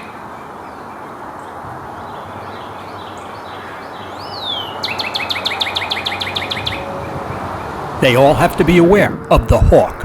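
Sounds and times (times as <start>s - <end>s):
forest background noise: 0.0s - 10.0s
bird singing: 2.0s - 10.0s.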